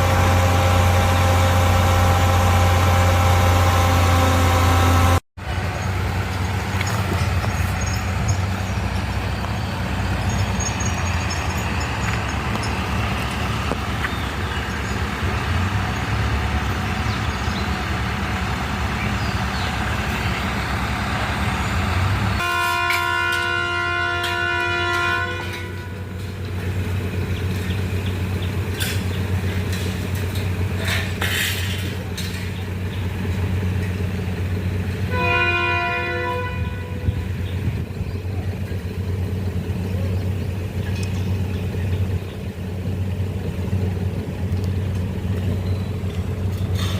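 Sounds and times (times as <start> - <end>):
large engine running: 0.0 - 46.9
multi-tone horn: 22.4 - 26.3, 35.1 - 37.5.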